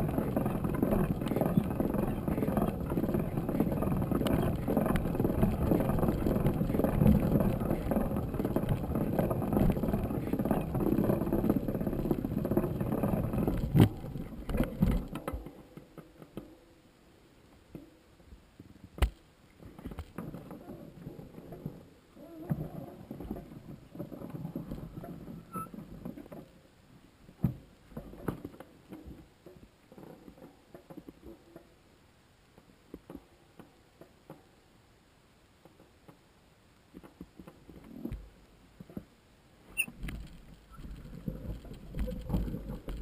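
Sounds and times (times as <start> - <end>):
crackling: 0.0 - 16.5, 39.7 - 43.0
irregular knocks and clicks: 0.0 - 16.6.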